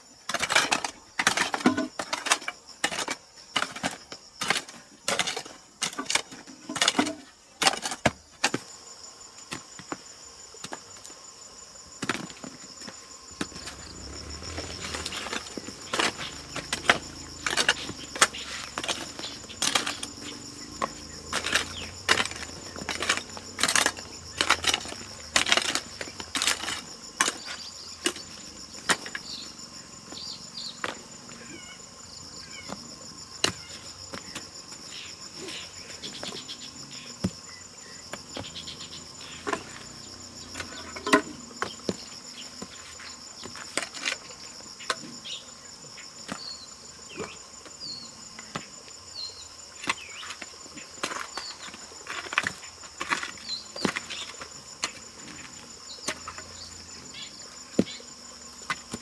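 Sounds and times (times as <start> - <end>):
insect chorus: 0.0 - 59.0
knocks and clatter: 13.4 - 27.4.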